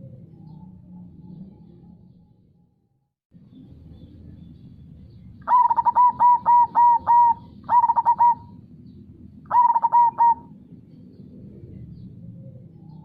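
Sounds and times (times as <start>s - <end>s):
dove cooing: 5.4s - 8.6s, 9.5s - 10.6s.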